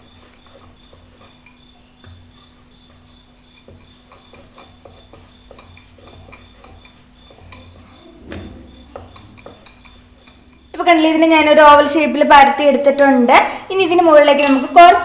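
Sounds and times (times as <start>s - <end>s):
rolling pin on dough: 0.0s - 12.9s
faint hum: 6.6s - 15.0s.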